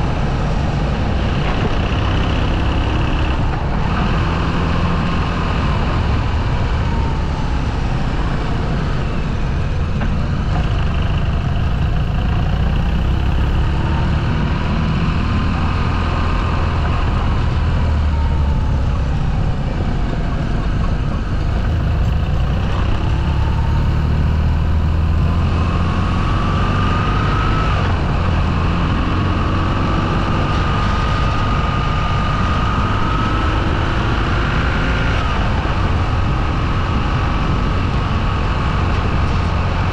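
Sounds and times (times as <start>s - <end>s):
low rumble: 0.0s - 26.7s
motorcycle engine running: 0.0s - 39.9s.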